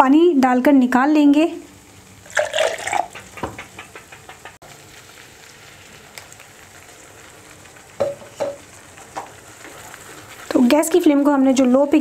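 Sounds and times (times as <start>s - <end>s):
paste sizzling in a pan: 4.6s - 12.0s.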